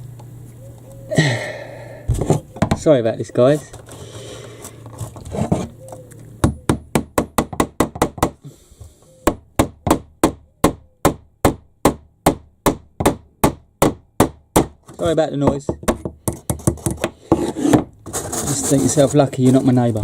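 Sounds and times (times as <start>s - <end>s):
hammer striking nails into wood: 6.4s - 8.4s, 9.2s - 17.9s.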